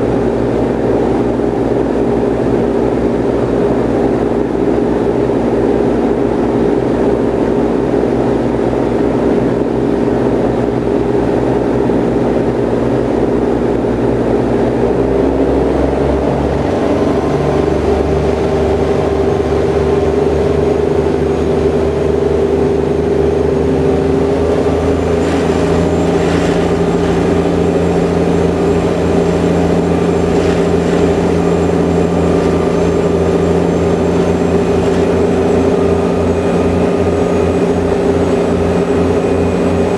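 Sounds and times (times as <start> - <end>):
ferry engines droning: 0.0 - 39.9.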